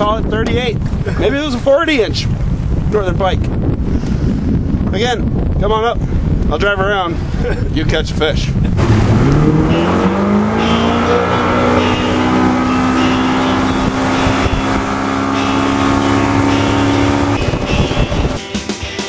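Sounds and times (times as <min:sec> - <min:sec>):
outboard motor speeding up: 0:08.6 - 0:18.4.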